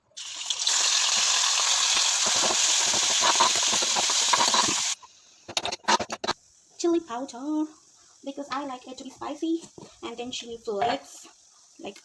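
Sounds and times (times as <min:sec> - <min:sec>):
food sizzling in oil: 0:00.0 - 0:05.1.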